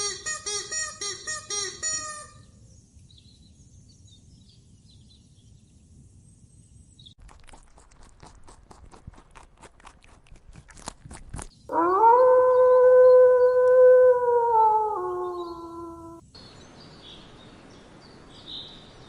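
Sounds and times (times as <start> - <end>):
sharp clicks or crunching steps: 7.2 - 11.6.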